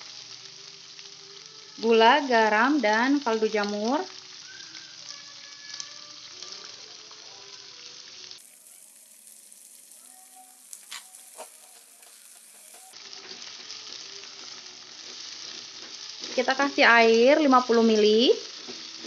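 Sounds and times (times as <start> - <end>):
vegetables sizzling in a wok: 0.0 - 19.0
spatula stirring: 9.2 - 16.6.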